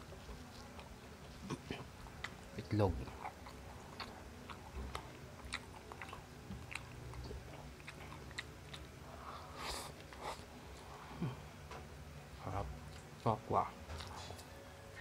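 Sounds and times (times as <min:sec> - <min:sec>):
person chewing food: 0:00.1 - 0:11.4, 0:13.9 - 0:14.6.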